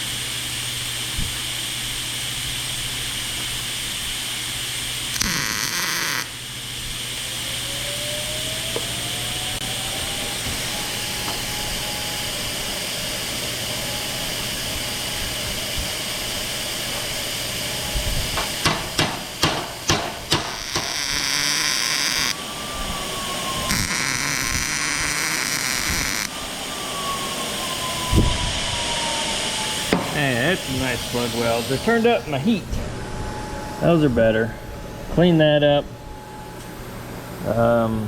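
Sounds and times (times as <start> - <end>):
crackling hiss of welding: 0.0 - 7.6, 10.0 - 22.4, 23.6 - 26.4, 29.7 - 32.6
steady hiss: 0.0 - 26.5, 28.1 - 38.0
taps on sheet metal: 18.4 - 21.0.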